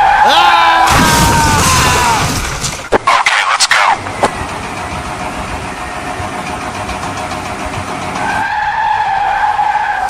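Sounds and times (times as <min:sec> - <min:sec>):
car tyres rushing: 0:03.9 - 0:10.0.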